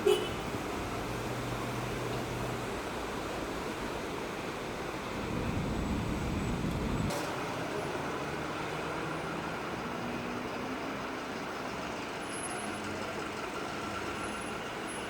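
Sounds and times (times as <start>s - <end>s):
road traffic noise: 0.0s - 15.0s
vehicle rumbling past: 0.5s - 11.3s.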